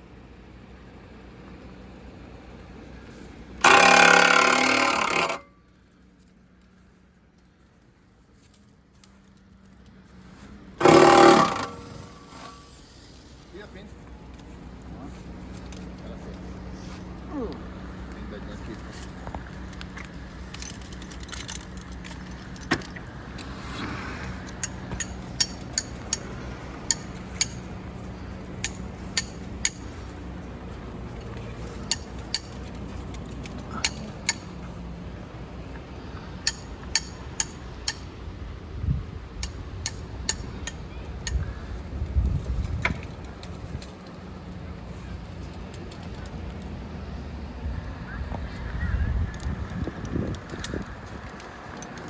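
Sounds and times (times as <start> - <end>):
low engine hum: 0.0 - 52.0
metallic clinks: 19.0 - 23.5, 24.3 - 30.2.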